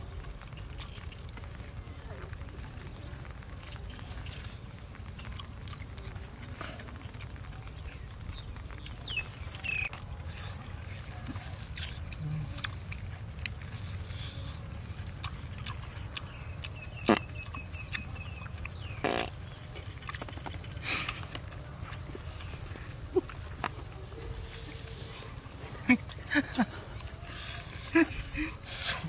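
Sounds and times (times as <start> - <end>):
steady low rumble: 0.0 - 29.0
man biting and chewing meat: 9.9 - 29.0.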